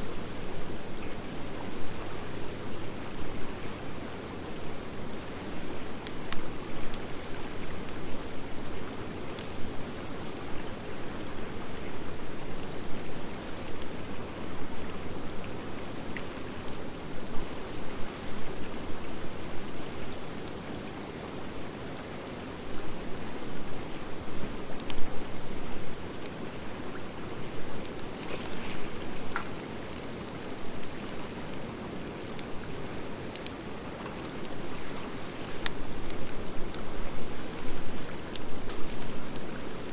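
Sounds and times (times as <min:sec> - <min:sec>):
wood fire crackling and popping: 0:27.3 - 0:39.9.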